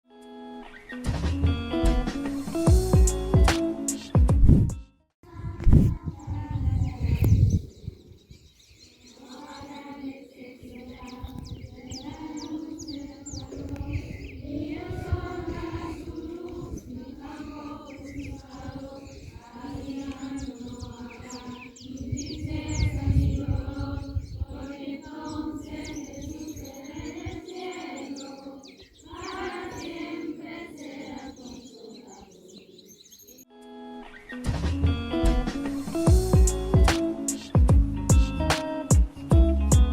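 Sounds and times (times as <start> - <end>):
voices singing a slow hymn: 5.3 - 33.4
small birds chirping: 6.0 - 33.5.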